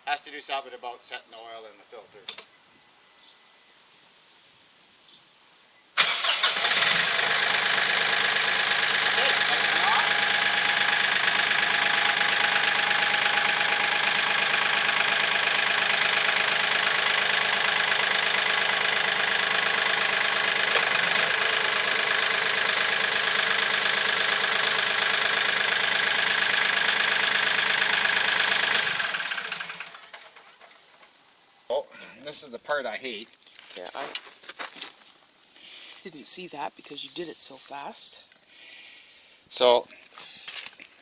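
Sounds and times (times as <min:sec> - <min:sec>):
diesel tractor engine idling: 0:06.0 - 0:31.0.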